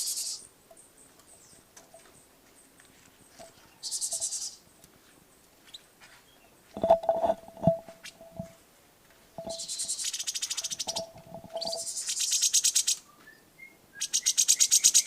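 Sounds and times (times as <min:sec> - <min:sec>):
songbird trilling: 0:00.0 - 0:01.6, 0:03.7 - 0:04.6, 0:09.4 - 0:15.0
sharp knocks and clicks: 0:06.8 - 0:08.5.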